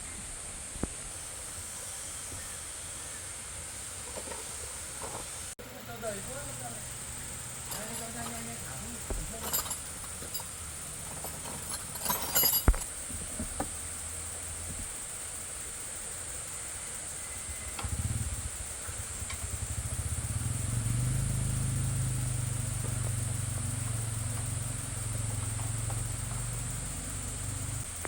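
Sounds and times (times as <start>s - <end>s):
engine starting and running: 6.0s - 12.8s, 17.2s - 28.0s
metal clanks and knocks: 7.6s - 13.8s.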